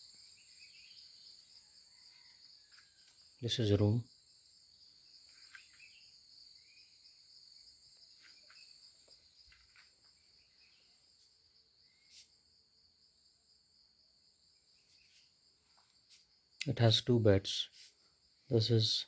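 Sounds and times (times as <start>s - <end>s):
faint clicks and chirps: 0.0s - 3.8s, 5.1s - 6.7s, 7.7s - 11.3s, 14.8s - 16.9s
crickets trilling: 0.0s - 19.0s.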